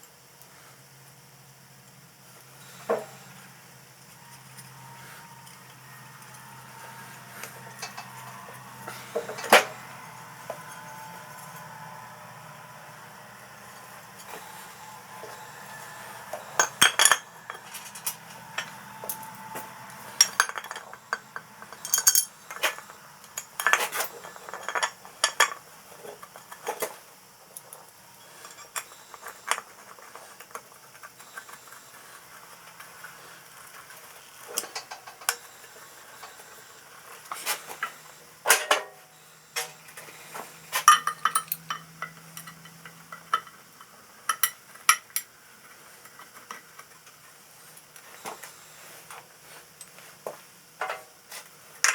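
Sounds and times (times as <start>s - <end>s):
metal tools clinking: 7.4s - 11.7s, 14.2s - 26.9s, 40.7s - 45.3s.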